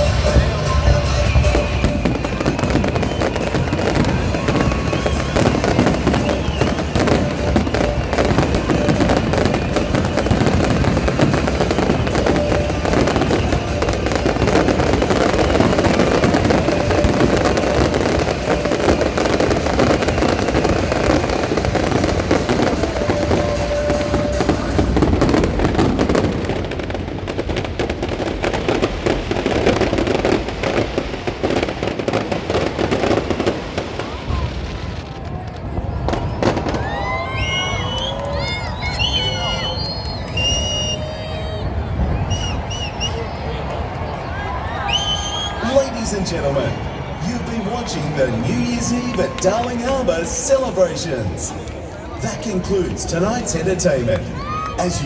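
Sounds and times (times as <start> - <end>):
music playing: 0.0 - 26.9, 45.5 - 51.6
fireworks bangs and crackles: 0.0 - 55.0.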